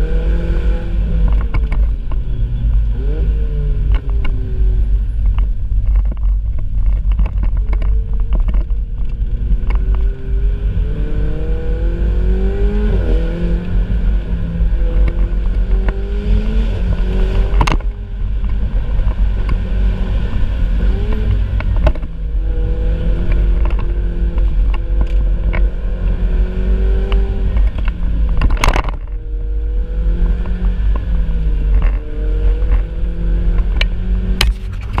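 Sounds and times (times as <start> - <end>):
sports car engine revving: 7.8 - 35.0.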